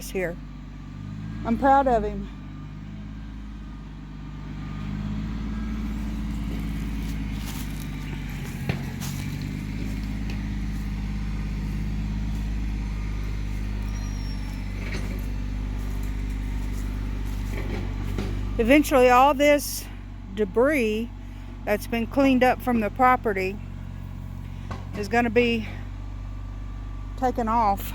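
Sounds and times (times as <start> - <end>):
tractor diesel engine running: 0.0 - 27.9
sharp knocks and clanks: 8.1 - 10.5, 17.3 - 18.6, 24.6 - 25.1.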